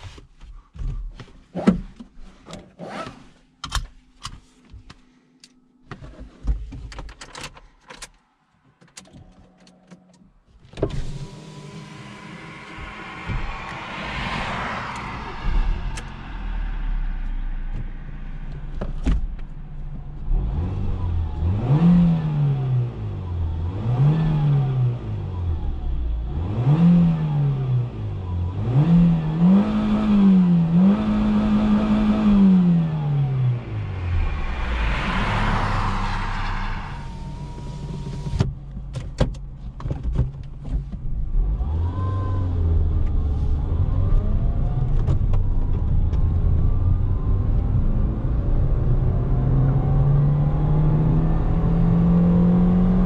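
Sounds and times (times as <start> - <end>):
car engine idling and revving: 8.6 - 53.0.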